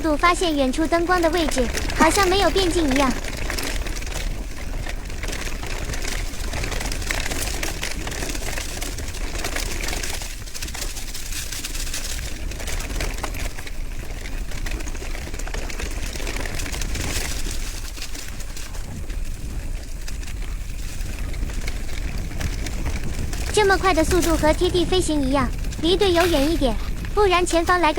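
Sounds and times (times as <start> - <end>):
wind on microphone: 18.8 - 27.9.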